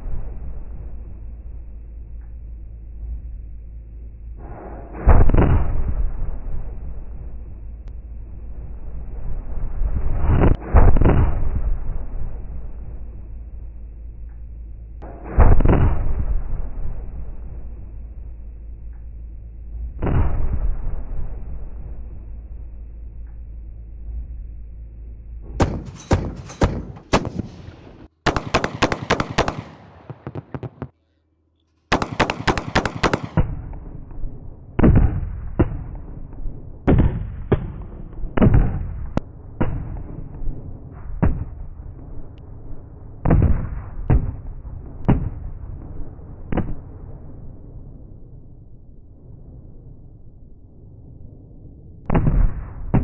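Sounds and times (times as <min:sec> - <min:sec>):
chain gun firing: 0:25.6 - 0:30.8, 0:31.9 - 0:33.5.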